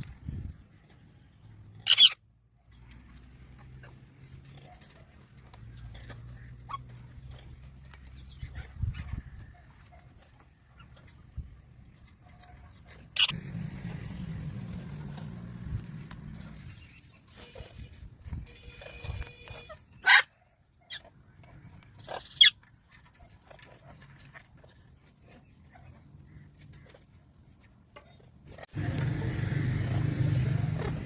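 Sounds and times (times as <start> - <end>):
parrots screeching: 1.8 - 2.2, 13.2 - 13.4, 22.1 - 22.6.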